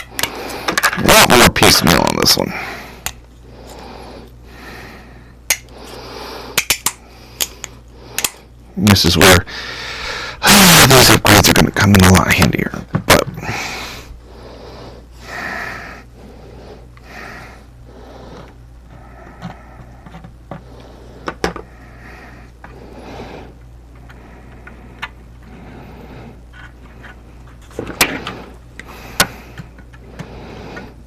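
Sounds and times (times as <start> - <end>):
objects clicking and knocking: 0.0 - 1.1
steady low hum: 0.0 - 31.0.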